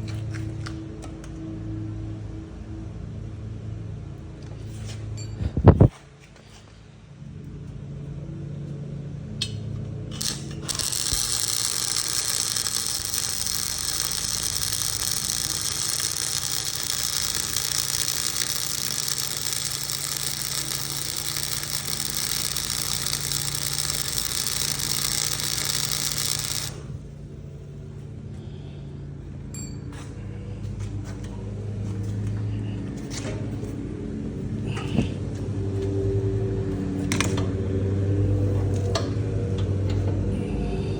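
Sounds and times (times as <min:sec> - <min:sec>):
lawn mower engine running: 0:10.1 - 0:27.7
sprayer hissing: 0:10.2 - 0:26.9.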